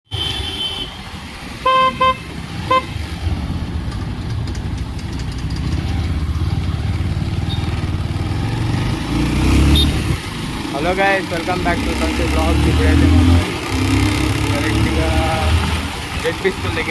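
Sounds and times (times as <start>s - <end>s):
road rumble: 0.0s - 16.9s
horn honks: 0.1s - 3.0s, 9.5s - 10.2s
motorcycle engine: 0.2s - 16.9s.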